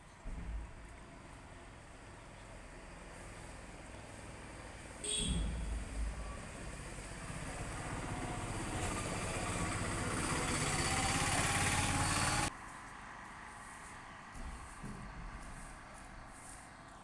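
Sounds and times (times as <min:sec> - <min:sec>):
vehicle engine running: 0:00.9 - 0:12.5.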